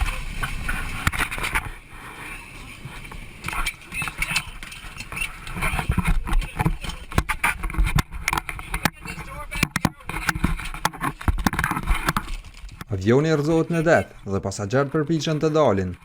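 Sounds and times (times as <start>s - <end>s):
indistinct voices: 0.0s - 16.0s
knocks and clicks: 3.4s - 12.9s.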